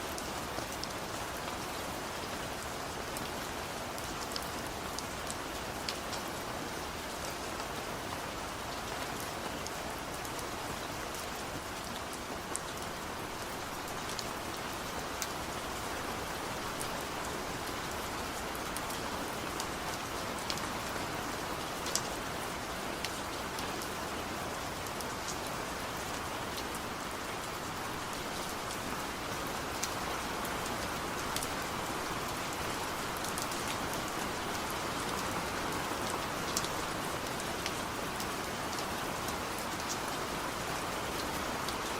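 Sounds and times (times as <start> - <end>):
steady rain hiss: 0.0 - 41.9.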